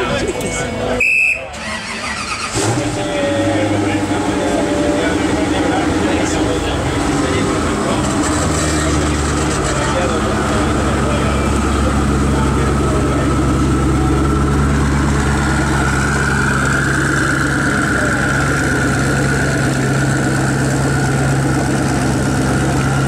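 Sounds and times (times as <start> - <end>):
car engine running at low revs: 2.4 - 23.0.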